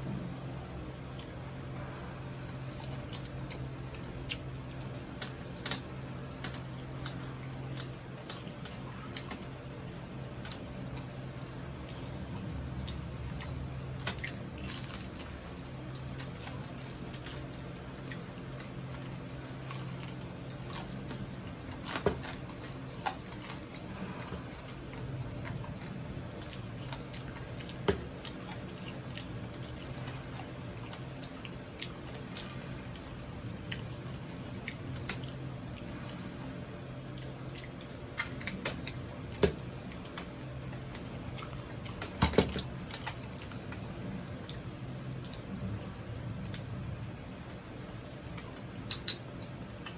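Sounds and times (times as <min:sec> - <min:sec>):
steady low hum: 0:00.0 - 0:49.9
person chewing crispy food: 0:00.2 - 0:45.6.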